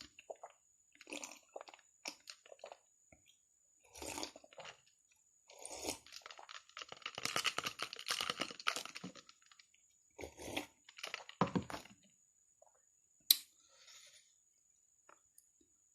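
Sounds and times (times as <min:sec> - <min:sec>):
person chewing noodles: 0:00.1 - 0:02.8, 0:03.9 - 0:04.9, 0:05.5 - 0:09.6, 0:10.2 - 0:11.4.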